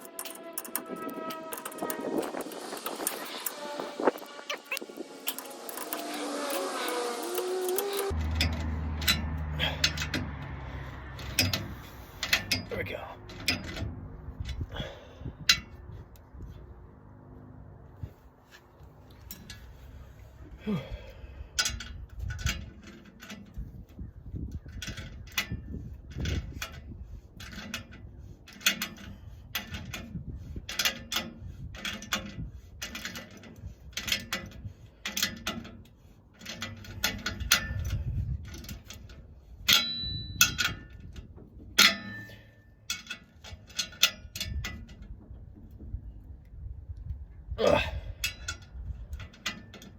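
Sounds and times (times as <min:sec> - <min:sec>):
metallic clanks of tools: 0:04.7 - 0:10.4, 0:11.1 - 0:14.9, 0:36.4 - 0:41.1, 0:41.7 - 0:45.0.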